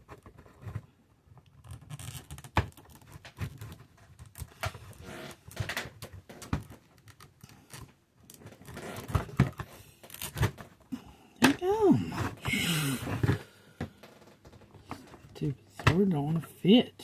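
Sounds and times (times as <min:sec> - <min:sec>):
plastic toy clicks and rubbing: 0:00.0 - 0:10.8.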